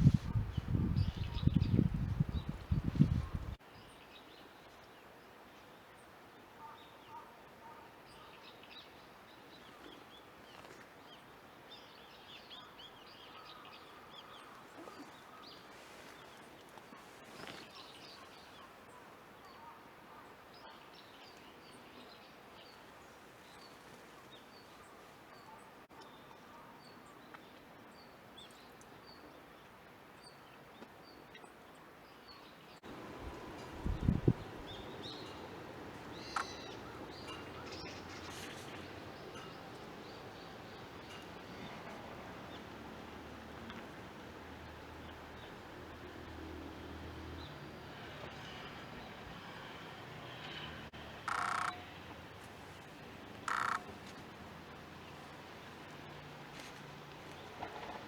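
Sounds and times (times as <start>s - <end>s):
small birds chirping: 0.0s - 4.0s, 12.2s - 19.7s, 32.3s - 42.8s, 52.8s - 55.9s
outdoor ambience: 0.0s - 58.0s.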